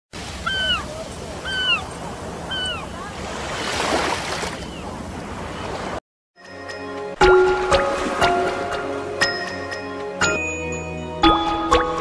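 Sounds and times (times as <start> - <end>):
bird calling: 0.4 - 3.1.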